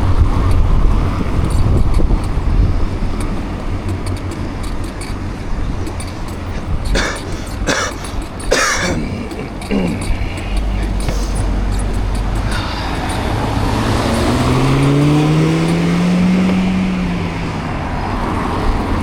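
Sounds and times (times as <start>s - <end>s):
wind on microphone: 0.0s - 8.4s
road traffic: 0.0s - 19.0s
person coughing: 6.9s - 13.0s.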